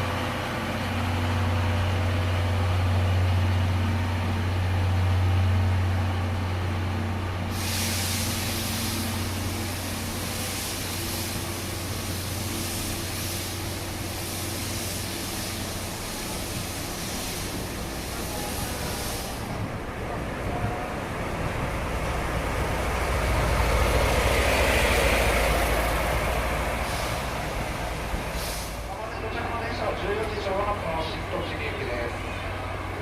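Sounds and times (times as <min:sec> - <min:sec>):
train low hum: 0:00.0 - 0:33.0
compressed air hissing: 0:07.5 - 0:19.6, 0:25.7 - 0:28.9.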